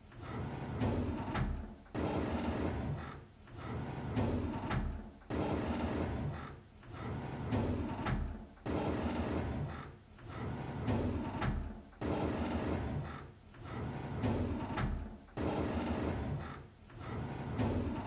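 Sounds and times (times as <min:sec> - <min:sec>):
drawer sliding open: 0:17.0 - 0:18.0.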